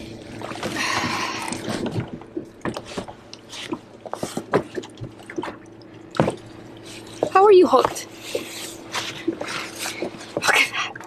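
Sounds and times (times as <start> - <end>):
fish flopping on deck: 0.0 - 10.7
water splash: 3.6 - 7.4.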